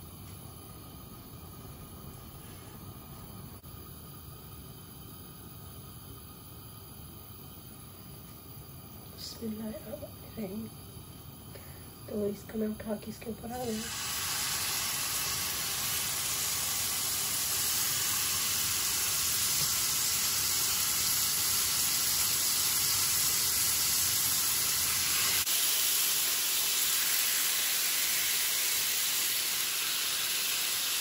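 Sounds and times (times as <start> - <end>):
meat sizzling on a griddle: 11.6 - 31.0.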